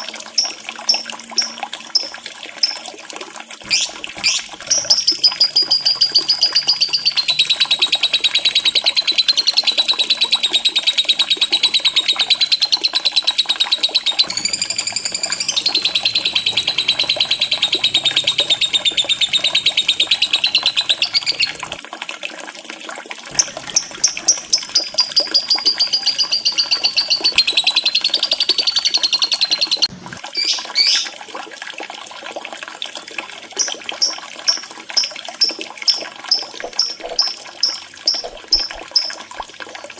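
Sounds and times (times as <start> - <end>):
bird chirps: 0.0 - 2.8, 3.7 - 21.8, 23.3 - 31.1, 33.6 - 39.1
lovebird chattering trill: 0.4 - 2.8, 3.7 - 21.8, 23.3 - 31.1, 33.6 - 39.1.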